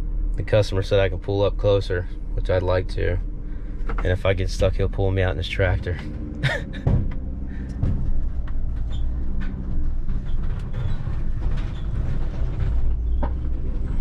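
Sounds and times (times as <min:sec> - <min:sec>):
work vehicle engine rumble: 0:00.0 - 0:14.0
rattles and knocks: 0:03.2 - 0:14.0.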